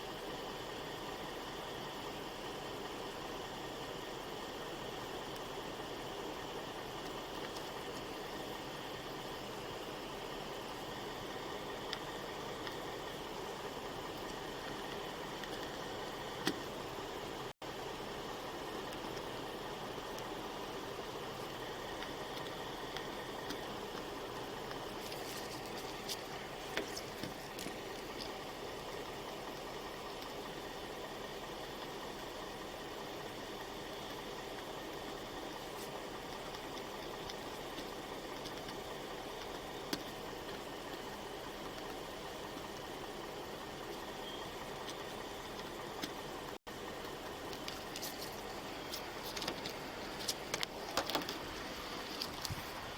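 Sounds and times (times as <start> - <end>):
vehicle engine idling: 0.0 - 52.9.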